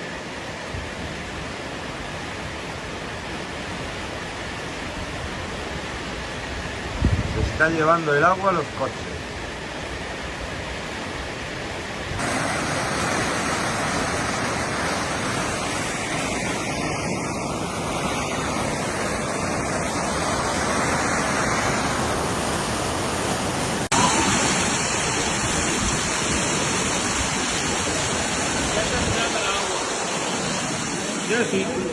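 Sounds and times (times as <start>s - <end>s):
rushing floodwater hiss: 0.0s - 31.9s.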